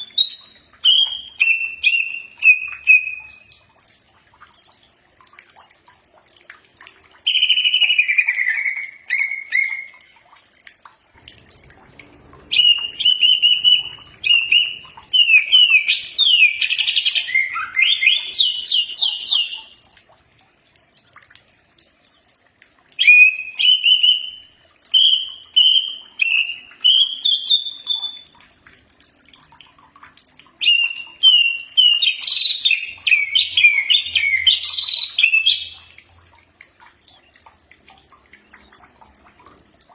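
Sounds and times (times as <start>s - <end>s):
bird singing whistled notes: 0.0s - 3.5s, 12.5s - 19.7s, 23.0s - 28.3s, 30.6s - 35.8s.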